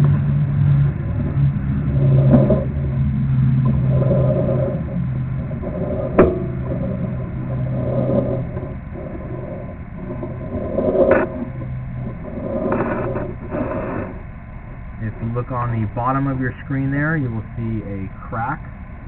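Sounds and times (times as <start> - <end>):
low mechanical hum and rumble: 0.0 - 19.0
loud clunk: 6.1 - 7.0.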